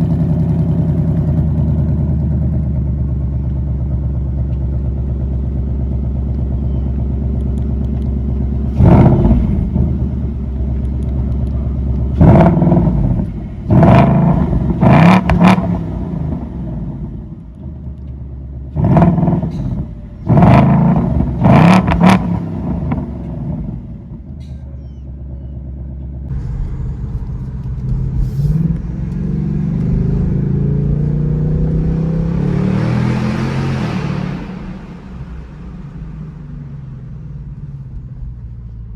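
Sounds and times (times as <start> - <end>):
car engine revving: 7.3 - 18.1, 18.7 - 24.5, 26.3 - 38.5.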